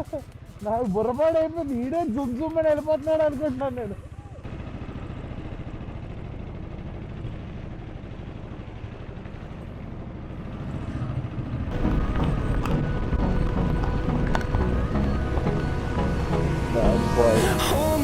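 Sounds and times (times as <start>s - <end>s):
background music: 0.0s - 4.0s, 11.7s - 18.0s
motorcycle engine running: 0.0s - 18.0s
road and wind noise: 0.0s - 18.0s.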